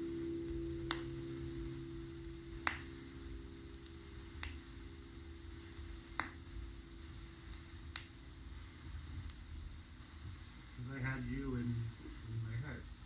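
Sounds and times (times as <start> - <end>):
sustained music note: 0.0 - 7.4
faint low hum: 0.0 - 13.0
vinyl record clicks: 7.5 - 8.2.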